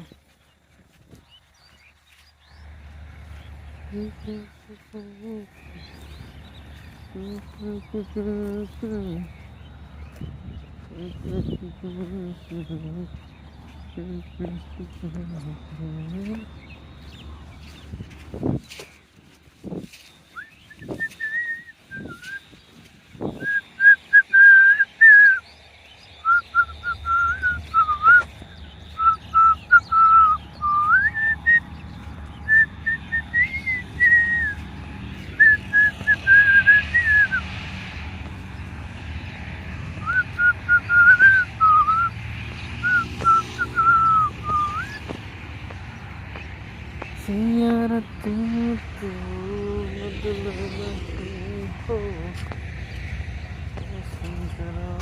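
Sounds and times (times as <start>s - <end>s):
low steady hum: 1.2s - 18.7s, 21.6s - 55.0s
person whistling a tune: 20.4s - 22.5s, 23.4s - 25.4s, 26.2s - 28.3s, 29.0s - 31.6s, 32.5s - 34.6s, 35.4s - 37.5s, 40.0s - 42.1s, 42.8s - 45.0s.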